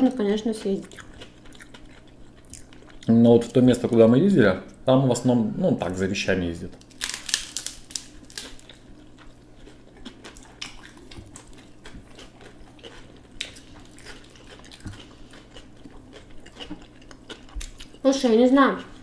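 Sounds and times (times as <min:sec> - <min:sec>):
person chewing food: 0:00.5 - 0:03.2, 0:06.8 - 0:18.1.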